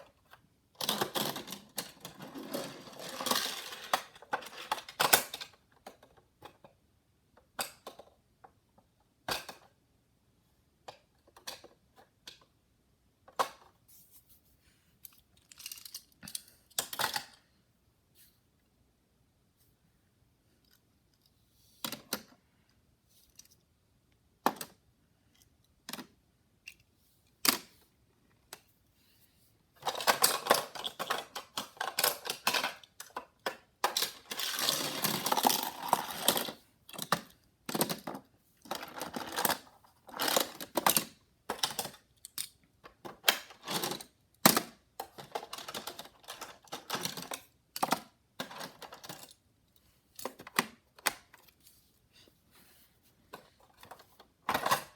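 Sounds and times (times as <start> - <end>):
toy cars clicking and rattling: 0.8 - 6.8, 10.9 - 12.5, 15.0 - 17.4, 29.8 - 49.4.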